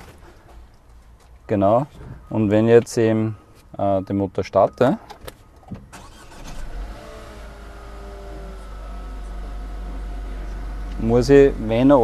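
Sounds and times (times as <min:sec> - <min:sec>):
car engine starting and idling: 0:05.8 - 0:12.0.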